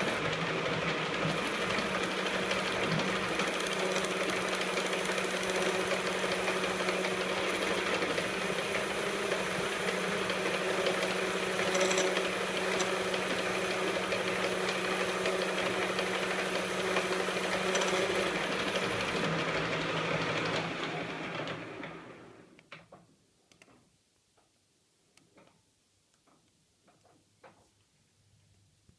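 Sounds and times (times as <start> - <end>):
lathe motor humming: 0.0 - 22.4
faint clicks: 22.6 - 23.8.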